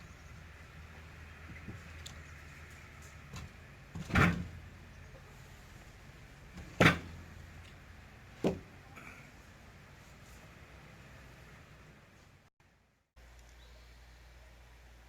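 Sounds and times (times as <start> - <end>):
sharp knocks: 8.4 - 8.7.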